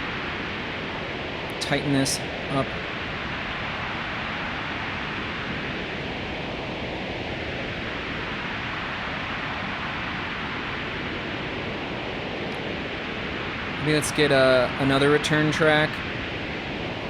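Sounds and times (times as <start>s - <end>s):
synthesized wind and rain noise: 0.0s - 17.0s.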